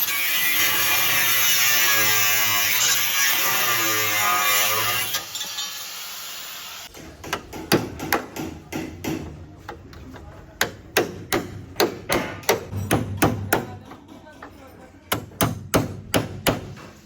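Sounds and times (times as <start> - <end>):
hammer striking sheet metal: 10.6 - 14.1.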